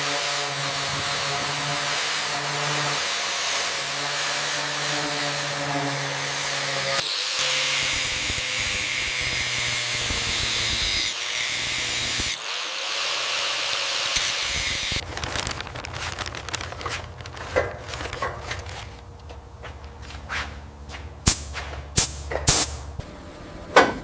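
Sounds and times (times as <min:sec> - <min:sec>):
power tool running: 0:00.0 - 0:15.0.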